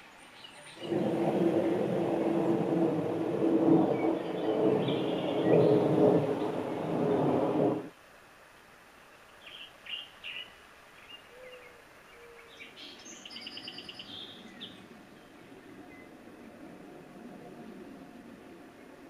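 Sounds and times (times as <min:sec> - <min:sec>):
loud low rumble: 0:00.8 - 0:07.9
soft low whistled notes: 0:00.8 - 0:07.9.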